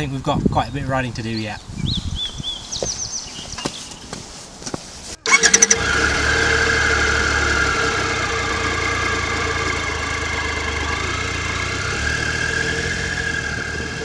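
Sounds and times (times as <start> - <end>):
motorcycle starter cranking: 5.2 - 14.0
motorcycle engine idling: 5.3 - 14.0.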